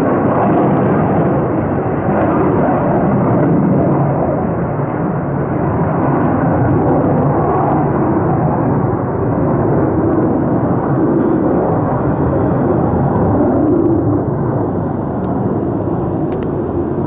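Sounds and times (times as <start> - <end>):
fighter jet engines roaring: 0.0 - 17.0.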